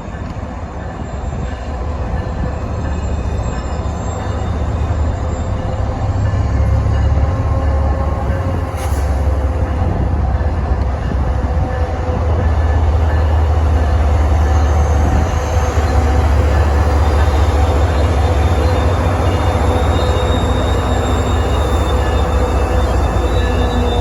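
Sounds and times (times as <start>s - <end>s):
train rail rumble: 0.0s - 24.0s
wind buffeting microphone: 9.4s - 19.7s.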